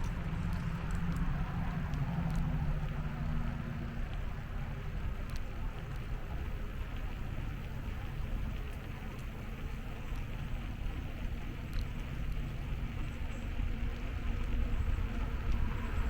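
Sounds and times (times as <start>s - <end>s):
passing vehicle hum: 0.0s - 5.2s
wind rumbling on microphone: 0.0s - 16.0s.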